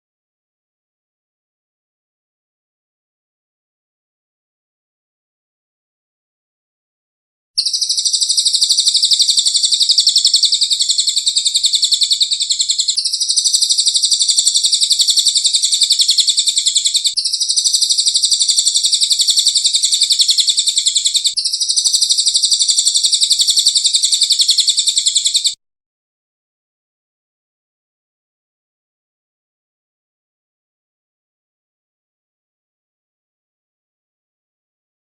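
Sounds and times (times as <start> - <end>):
songbird rapid high trill: 7.6 - 25.6.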